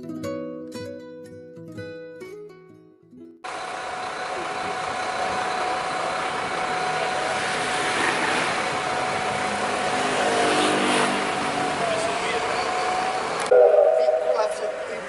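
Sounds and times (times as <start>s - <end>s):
road train engine: 3.5s - 15.0s
thin steady tone: 13.5s - 15.0s.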